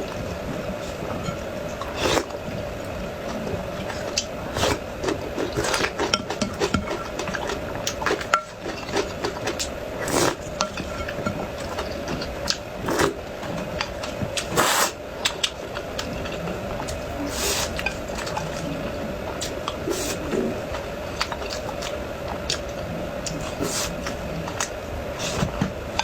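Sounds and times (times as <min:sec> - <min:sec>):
chewing and mouth noises: 0:00.0 - 0:25.7
utensils scraping dishes: 0:03.9 - 0:12.3.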